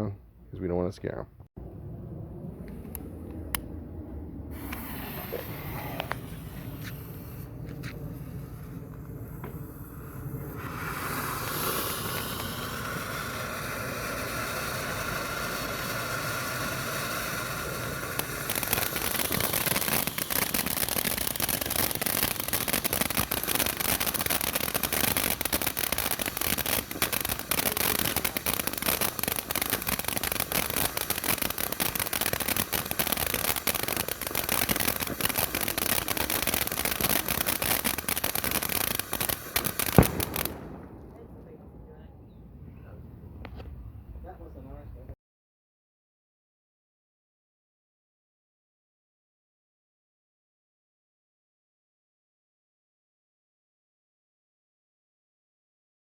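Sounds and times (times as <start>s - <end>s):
firework hissing: 4.4s - 41.8s
firework rapid crackling: 4.5s - 42.0s.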